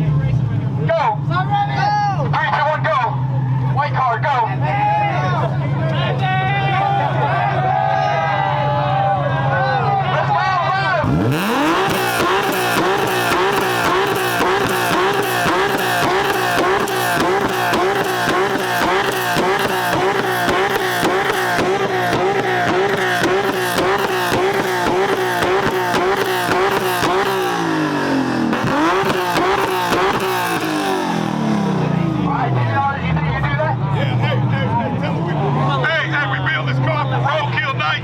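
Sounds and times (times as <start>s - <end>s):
car engine revving with pops: 11.0s - 32.6s.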